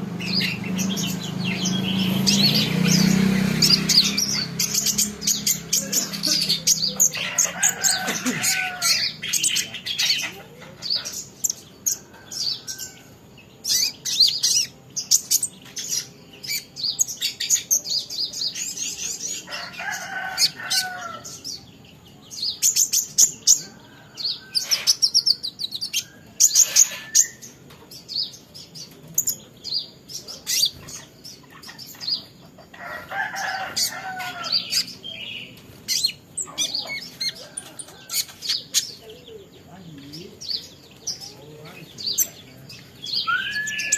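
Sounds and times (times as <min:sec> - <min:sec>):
lower bending bird calls: 0:00.0 - 0:17.7, 0:33.7 - 0:43.9
sunbird chirping and twittering: 0:00.0 - 0:43.9.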